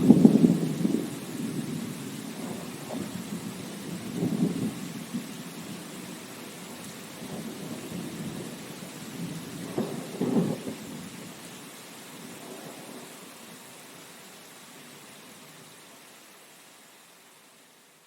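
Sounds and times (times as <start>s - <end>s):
rolling thunder rumbles: 0.0s - 11.2s
rain hiss: 0.0s - 18.0s.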